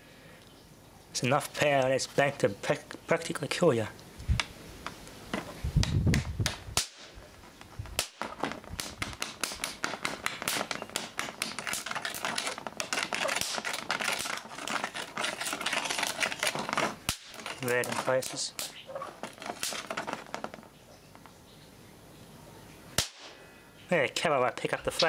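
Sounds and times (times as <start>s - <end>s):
electrical arcing crackling snaps: 4.3s - 21.2s, 23.0s - 23.4s.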